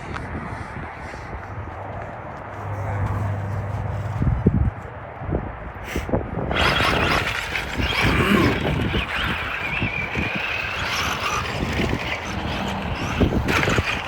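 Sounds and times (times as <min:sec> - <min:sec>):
electric motors whining: 0:06.5 - 0:14.0.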